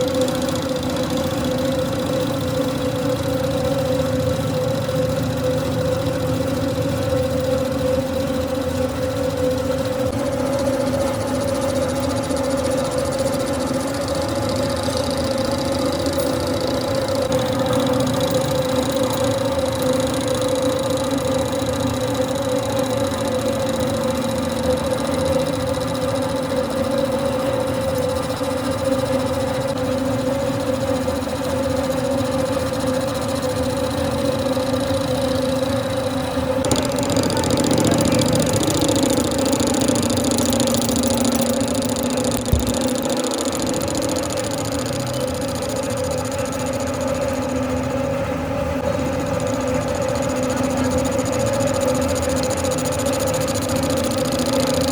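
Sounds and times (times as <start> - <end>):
lathe motor humming and whining: 0.0 - 54.9.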